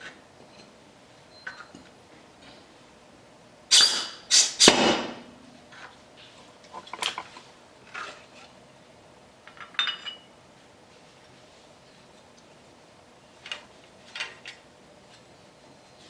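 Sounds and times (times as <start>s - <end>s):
metal tools clattering: 9.5s - 10.3s.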